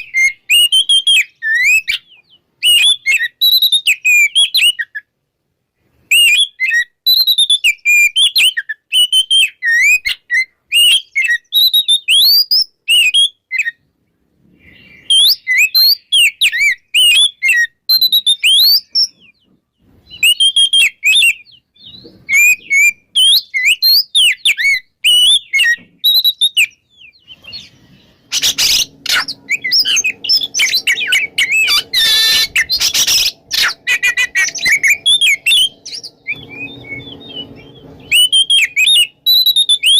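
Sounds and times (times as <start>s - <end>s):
songbird singing whistled phrases: 0.0s - 5.1s, 6.1s - 13.8s, 14.6s - 19.5s, 20.1s - 39.9s
rough noise with low hum: 27.3s - 39.9s.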